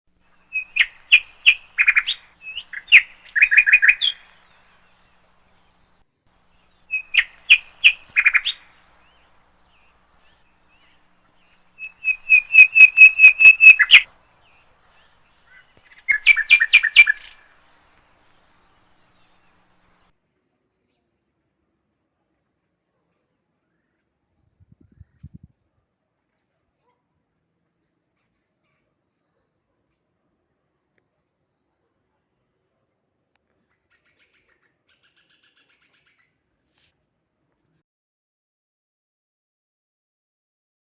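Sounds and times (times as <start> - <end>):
songbird chirping: 0.2 - 21.5, 28.0 - 36.4.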